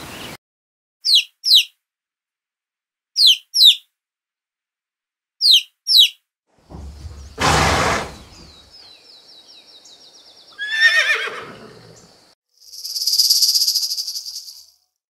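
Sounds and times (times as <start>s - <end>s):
pony breathy blast: 7.3s - 8.5s
pony whinnying: 10.6s - 12.0s
snake rattling buzz: 12.6s - 14.7s.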